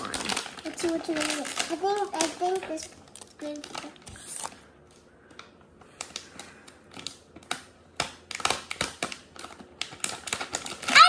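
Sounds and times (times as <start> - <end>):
plastic package crinkling: 0.0 - 4.6, 6.0 - 11.0
sharp plastic clicks: 5.3 - 11.0.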